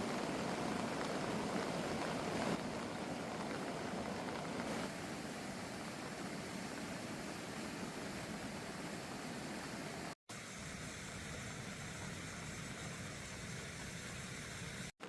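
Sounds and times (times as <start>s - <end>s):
stream rushing: 0.0s - 10.1s.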